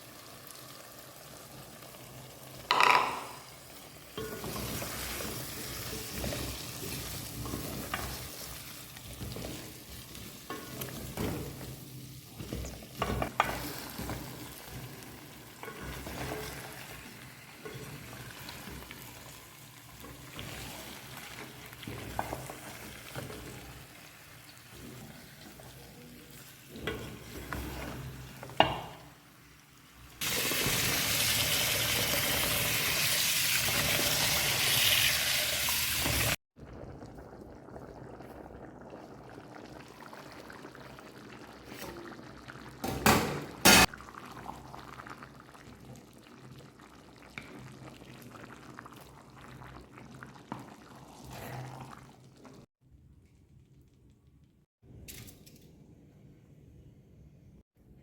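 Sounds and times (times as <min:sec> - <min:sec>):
food frying in hot oil: 0:30.0 - 0:42.8.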